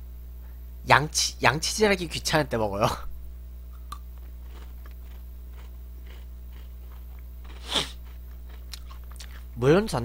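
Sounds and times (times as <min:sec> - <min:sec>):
low electrical hum: 0:00.0 - 0:10.0
chewing biscuit stick crunches: 0:03.8 - 0:09.5.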